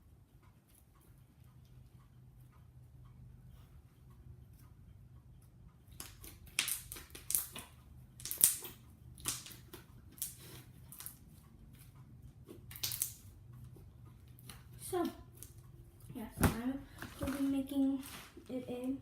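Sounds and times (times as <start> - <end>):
slime squishing: 5.9 - 11.2.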